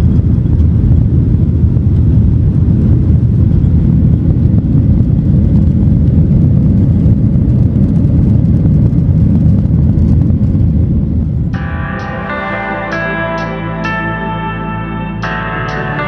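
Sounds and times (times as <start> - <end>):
airliner cabin rumble: 0.0 - 11.6
plucked guitar music: 11.6 - 16.0.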